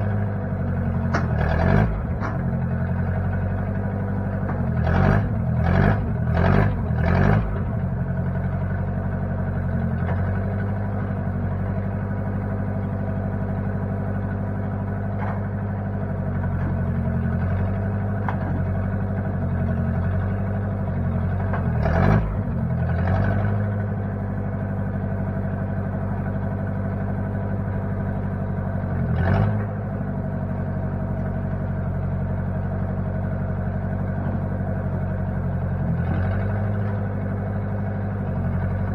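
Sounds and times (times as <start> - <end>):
backhoe engine running: 0.0 - 38.9.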